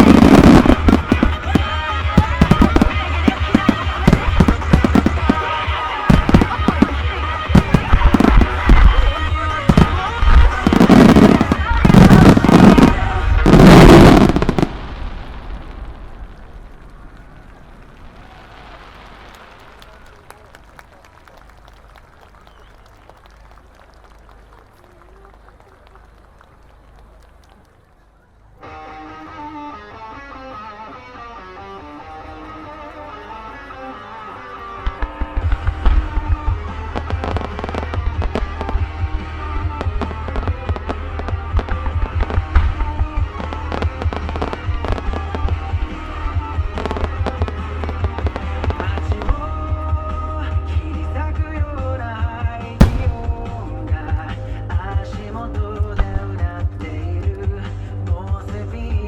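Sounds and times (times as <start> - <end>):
music playing: 0.0 - 14.8, 28.6 - 59.0
fireworks booming: 0.0 - 20.2, 52.7 - 55.4
firework shells bursting: 52.8 - 54.4
booms echoing as low rumble: 52.8 - 55.0.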